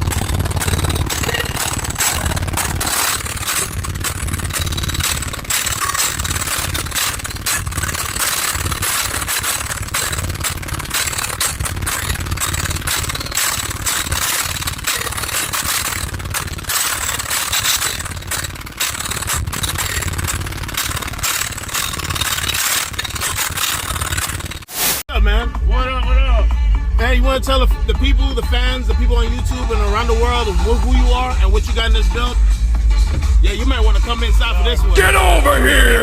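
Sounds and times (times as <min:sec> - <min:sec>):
subwoofers playing heavy bass: 0:00.0 - 0:05.6, 0:25.1 - 0:36.0
buzzing panels rattling: 0:00.0 - 0:24.7.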